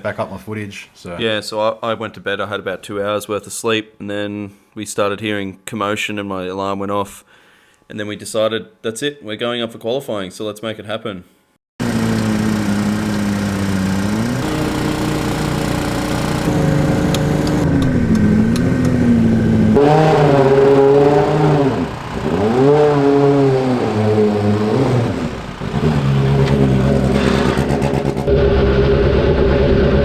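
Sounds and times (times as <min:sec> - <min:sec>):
racing car engine revving: 0:11.8 - 0:30.0.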